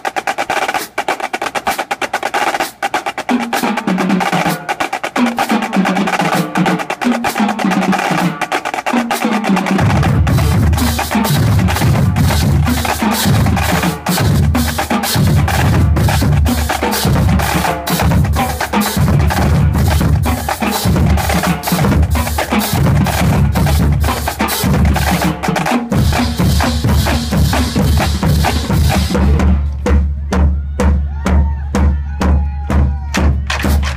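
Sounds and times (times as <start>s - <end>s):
bass drums beating: 9.7s - 33.9s
snare drums and stick clicks: 33.2s - 33.9s.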